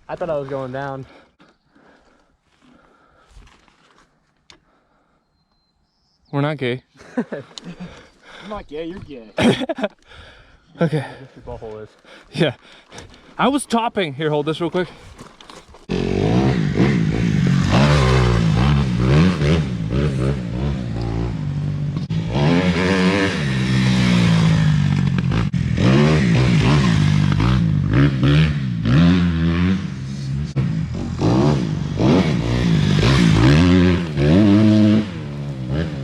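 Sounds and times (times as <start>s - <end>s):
dirt bike engine revving: 15.9s - 36.0s.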